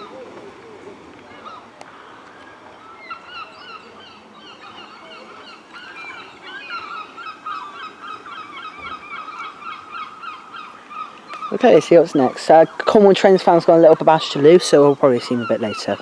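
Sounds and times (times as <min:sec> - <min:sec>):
flock of birds calling: 0:00.0 - 0:16.0.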